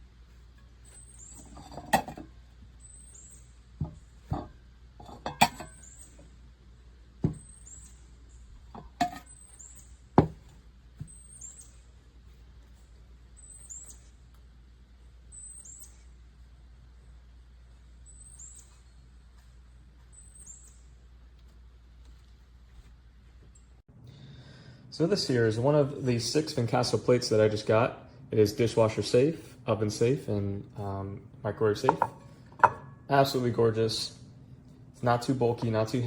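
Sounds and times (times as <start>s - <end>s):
ceramic plates knocking: 1.4s - 2.2s, 3.8s - 5.8s, 8.8s - 9.3s, 10.2s - 10.4s, 31.9s - 32.9s.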